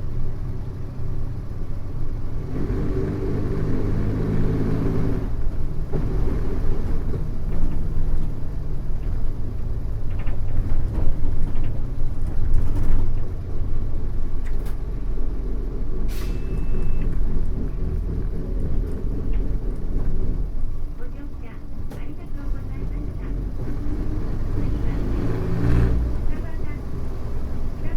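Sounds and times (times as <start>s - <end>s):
bus diesel engine running: 0.0s - 27.9s
short sharp air hiss: 16.1s - 16.6s.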